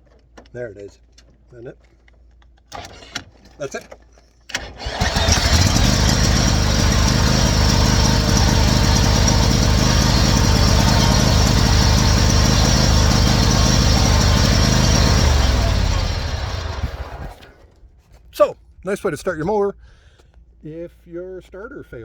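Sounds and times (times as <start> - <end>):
mower engine running: 4.6 - 17.6.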